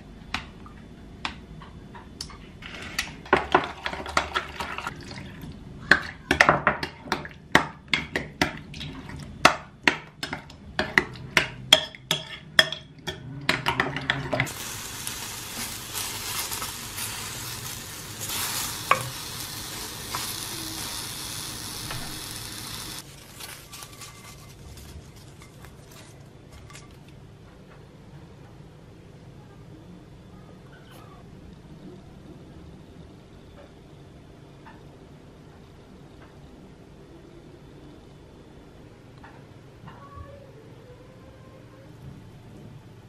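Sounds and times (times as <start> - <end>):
food sizzling in a pan: 14.4 - 24.5.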